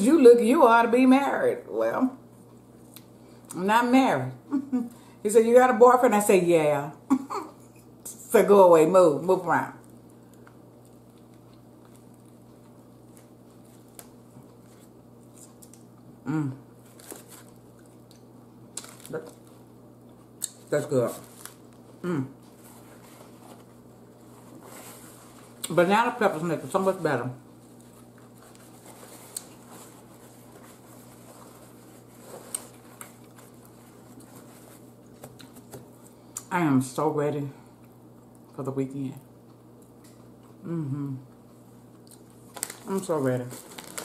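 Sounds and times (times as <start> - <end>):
low steady hum: 0.0 - 44.0
faint chewing: 9.8 - 16.1, 16.9 - 25.7, 27.5 - 36.5, 41.3 - 42.9
person humming briefly: 22.0 - 22.3, 40.6 - 41.2.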